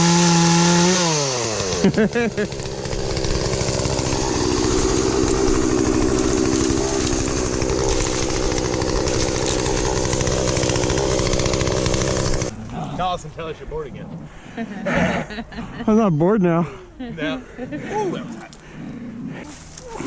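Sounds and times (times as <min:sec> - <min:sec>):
chainsaw engine revving and idling: 0:00.0 - 0:12.8.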